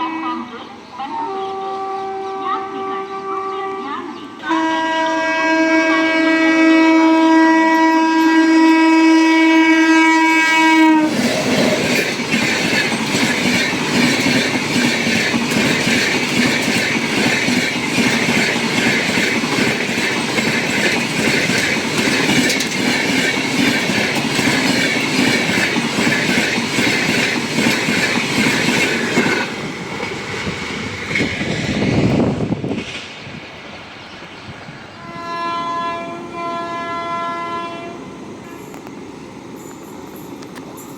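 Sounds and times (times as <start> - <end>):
train horn blowing: 0.0 - 11.2, 34.9 - 38.9
train wheels clickety-clack: 10.9 - 33.4.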